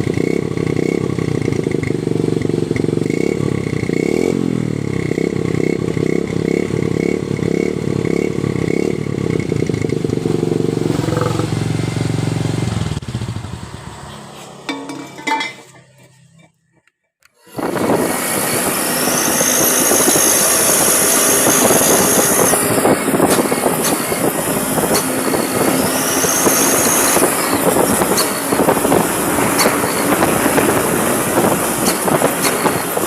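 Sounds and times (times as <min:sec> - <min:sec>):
truck exhaust running: 0:00.0 - 0:16.9, 0:17.5 - 0:33.0
high-pitched exhaust whistle: 0:17.5 - 0:33.0.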